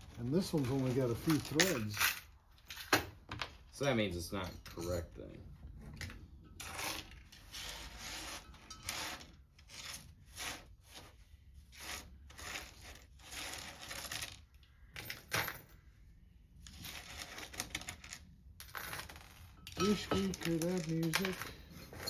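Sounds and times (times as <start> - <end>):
small screws clinking: 0.7 - 3.2, 13.2 - 15.8, 16.6 - 22.0.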